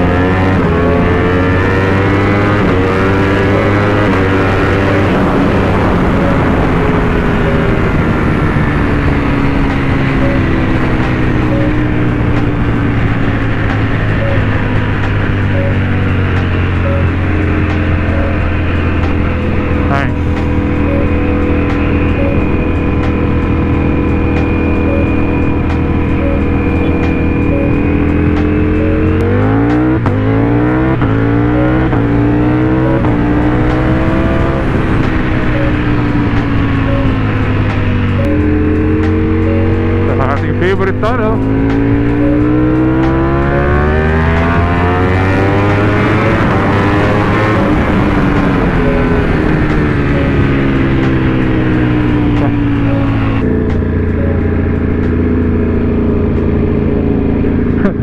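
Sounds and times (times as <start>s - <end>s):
motorcycle engine running: 0.0s - 58.0s
road and wind noise: 0.0s - 58.0s.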